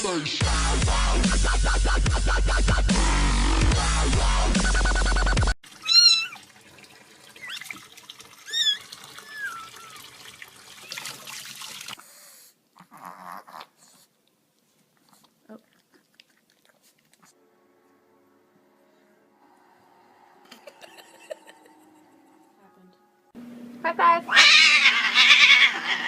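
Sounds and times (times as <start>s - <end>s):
dubstep music: 0.0s - 5.5s
cat meowing: 5.8s - 6.4s, 8.5s - 10.0s, 24.3s - 26.0s.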